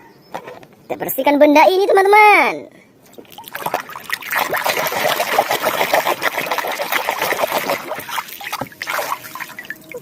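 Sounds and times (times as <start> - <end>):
water splashing and trickling: 3.1 - 10.0.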